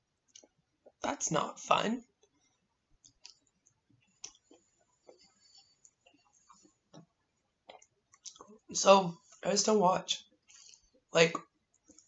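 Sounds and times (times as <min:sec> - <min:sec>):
mouth clicks of chewing: 0:04.2 - 0:04.6, 0:07.7 - 0:08.5.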